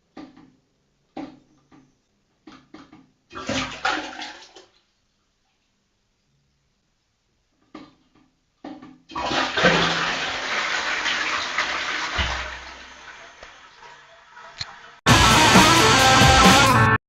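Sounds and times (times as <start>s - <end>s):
toilet flush clicks: 9.1s - 13.8s
toilet flushing water rush: 9.1s - 16.5s.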